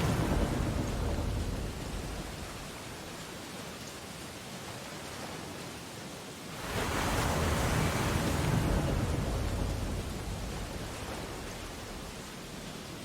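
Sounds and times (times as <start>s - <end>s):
wave breaking with deep rumble: 0.0s - 3.1s, 6.6s - 12.9s
surf hiss: 0.0s - 13.0s.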